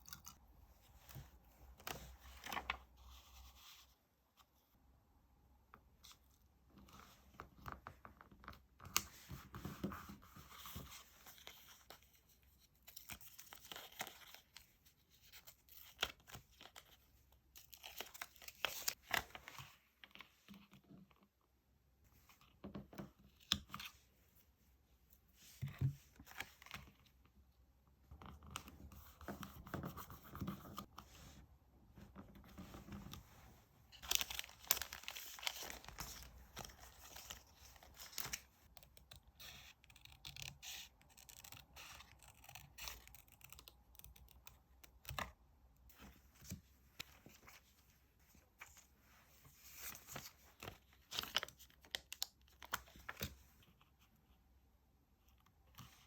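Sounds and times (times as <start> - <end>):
paper rustling and peeling: 34.0 - 39.2.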